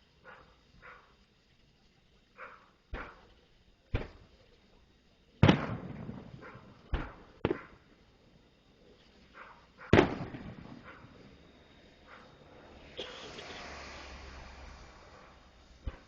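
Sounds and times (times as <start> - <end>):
fireworks exploding: 2.9 - 4.4, 5.4 - 7.9, 9.8 - 13.0.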